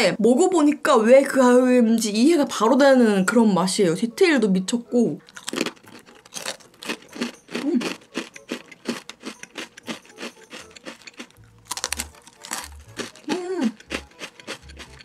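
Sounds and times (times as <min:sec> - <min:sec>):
crunchy rusk being chewed: 0:05.2 - 0:15.0.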